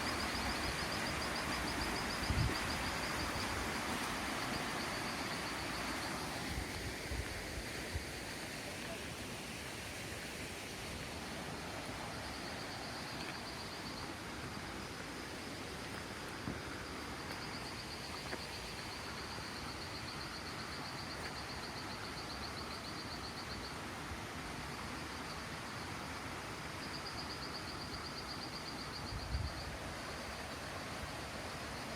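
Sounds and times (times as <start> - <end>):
noisy outdoor background: 0.0 - 31.9.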